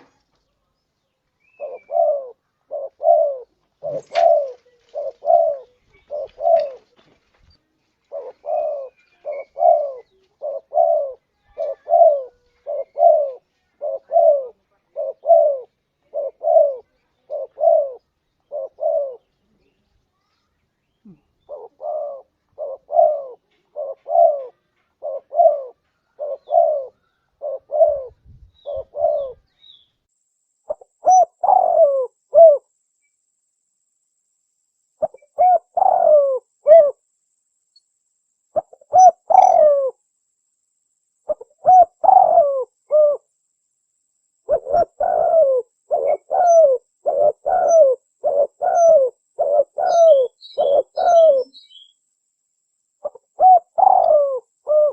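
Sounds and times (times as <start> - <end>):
dove cooing: 0.0 - 0.2, 1.4 - 7.2, 8.0 - 19.3, 21.0 - 29.5, 30.7 - 32.8, 35.0 - 37.1, 38.6 - 40.1, 41.3 - 43.3, 44.4 - 51.9, 53.0 - 54.9.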